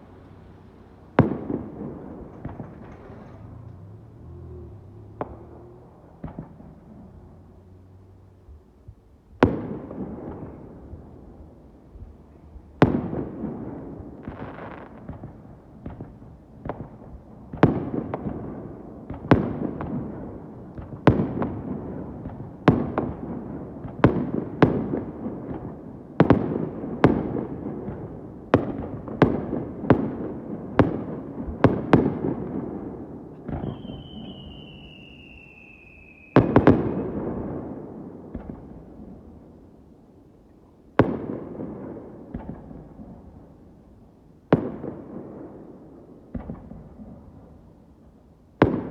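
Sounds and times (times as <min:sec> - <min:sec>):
firework shells bursting: 0:00.0 - 0:04.1
falling firework whistle: 0:33.4 - 0:37.6.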